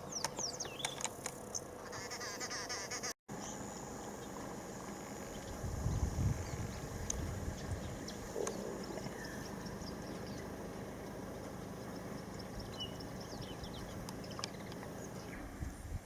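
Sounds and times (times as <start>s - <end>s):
low steady rumble: 3.4s - 16.0s.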